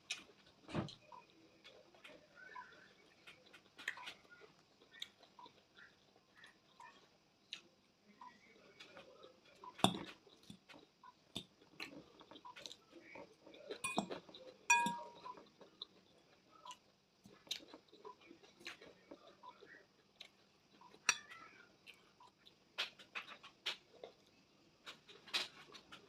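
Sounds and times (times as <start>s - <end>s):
chewing crunches: 0.0s - 7.7s, 8.8s - 26.0s
fork clinking on a plate: 13.8s - 15.4s.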